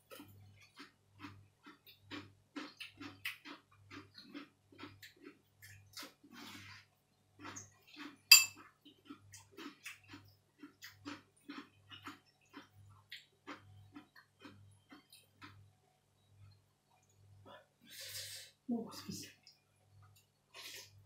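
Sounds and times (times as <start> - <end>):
chewing and crunching vegetables: 0.0 - 15.8
spoon clinking against bowl: 8.3 - 8.6.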